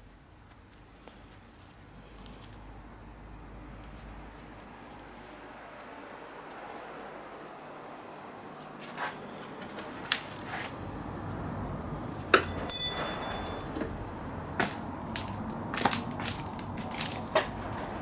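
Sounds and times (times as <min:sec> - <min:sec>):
sharp ringing metallic clink: 0:12.4 - 0:14.0.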